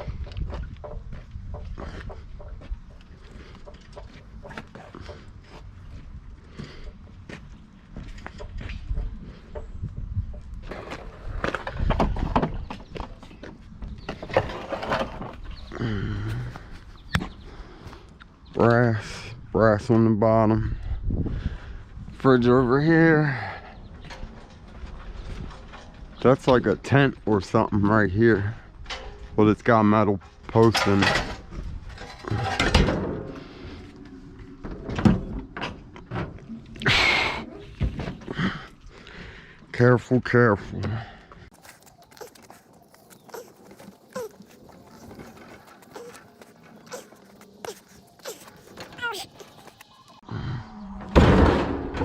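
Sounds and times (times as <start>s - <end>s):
scrap metal clanking and scraping: 14.0s - 15.7s, 30.2s - 36.9s.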